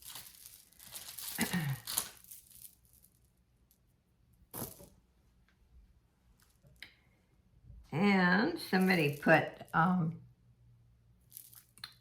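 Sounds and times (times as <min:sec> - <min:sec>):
packaging crinkling and rustling: 0:00.0 - 0:03.2.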